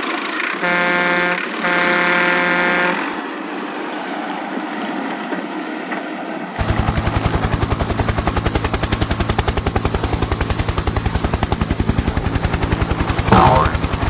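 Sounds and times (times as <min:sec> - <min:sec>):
cartoon helicopter rotor chop: 0:00.0 - 0:03.2, 0:06.6 - 0:14.0.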